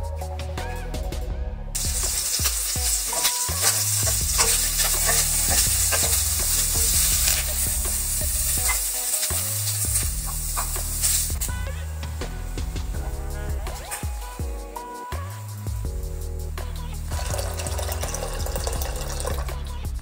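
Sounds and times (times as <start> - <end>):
prawns sizzling in oil: 1.8 - 12.4, 17.0 - 19.7
spatula scraping a pan: 1.9 - 11.3.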